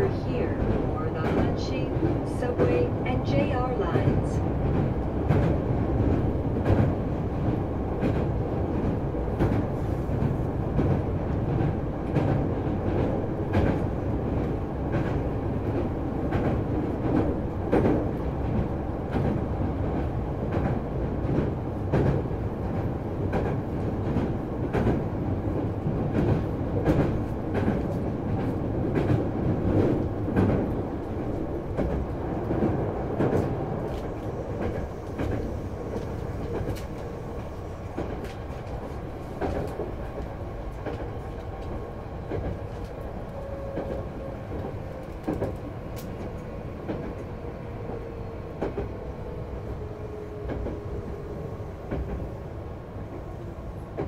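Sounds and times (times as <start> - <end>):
wheels rumbling on rail: 0.0 - 54.0
clacks over rail joints: 4.0 - 25.0, 25.9 - 37.2, 38.0 - 47.3.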